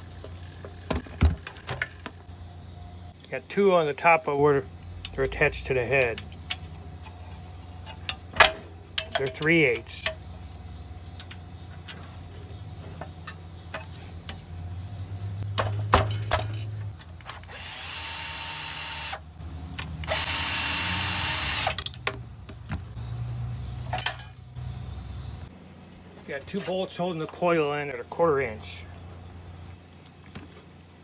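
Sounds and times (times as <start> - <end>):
power tool spinning out bolts: 17.2 - 19.2, 20.0 - 22.0.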